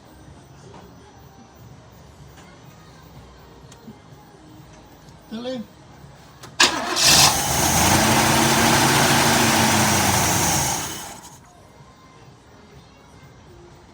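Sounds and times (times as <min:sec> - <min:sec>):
car engine starting and stalling: 0:06.4 - 0:11.4.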